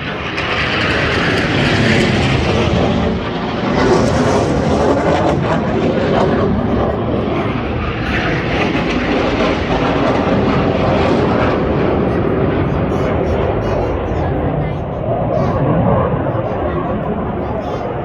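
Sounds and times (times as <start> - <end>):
aircraft engine rushing: 0.0 - 18.0.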